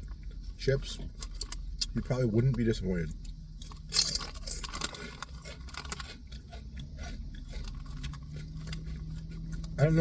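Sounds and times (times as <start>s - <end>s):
chips crunching while chewing: 3.6s - 10.0s.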